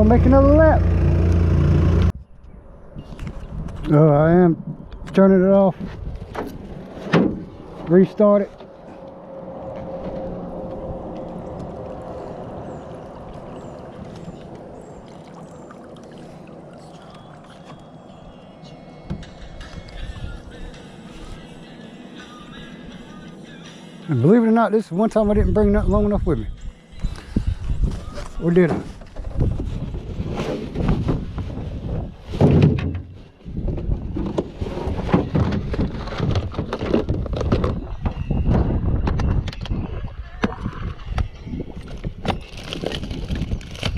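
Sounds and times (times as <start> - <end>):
outboard motor running: 0.0 - 2.1
water gurgling and splashing: 11.4 - 17.7
gear and boxes rummaged through: 28.0 - 37.9, 41.8 - 43.9.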